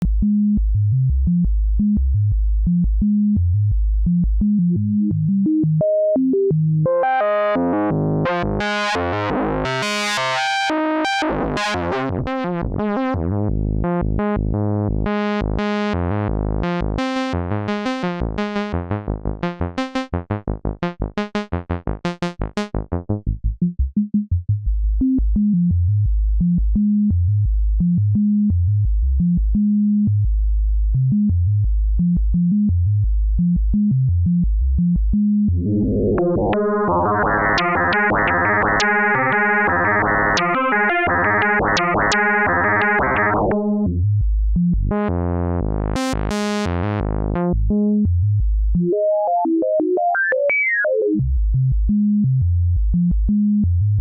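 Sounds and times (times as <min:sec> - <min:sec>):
synthesizer melody of short notes: 0:35.6 - 0:43.9, 0:44.9 - 0:47.5.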